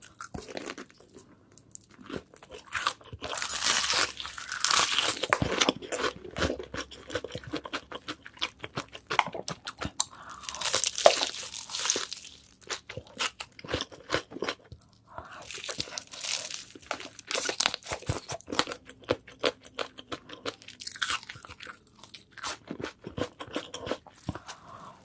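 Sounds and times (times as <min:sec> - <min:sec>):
crunching bites of fried chicken: 0:02.0 - 0:24.7
quiet chewing: 0:12.6 - 0:25.0.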